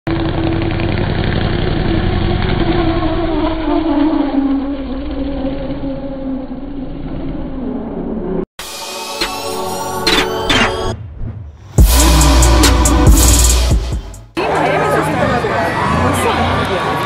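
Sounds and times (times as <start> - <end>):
car engine running hard: 0.1 - 5.8.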